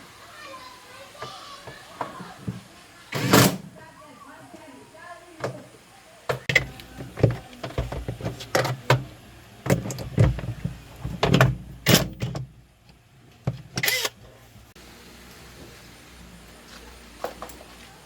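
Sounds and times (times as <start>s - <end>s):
tools knocking and clattering: 6.3s - 9.1s, 9.7s - 12.5s.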